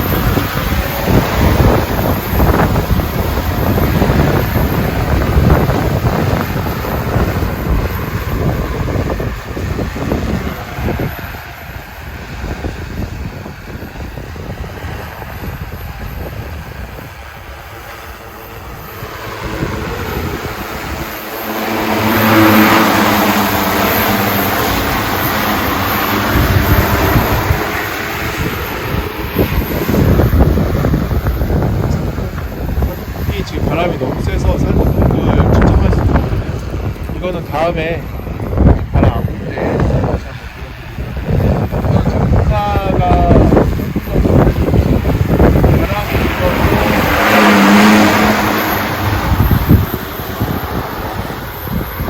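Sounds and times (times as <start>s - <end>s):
drone propellers humming: 0.0s - 52.0s
wind buffeting microphone: 0.0s - 52.0s.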